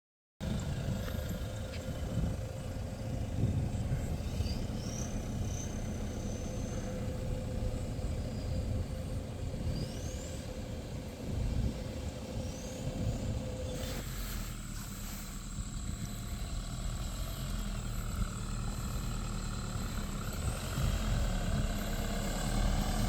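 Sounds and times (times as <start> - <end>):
vehicle rumble: 0.4 - 23.0.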